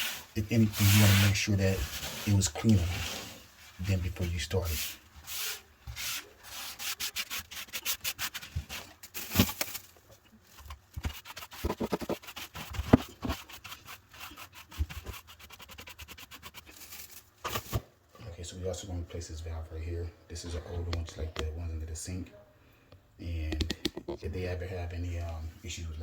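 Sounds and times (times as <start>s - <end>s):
cloth rubbing a sink: 0.0s - 8.9s.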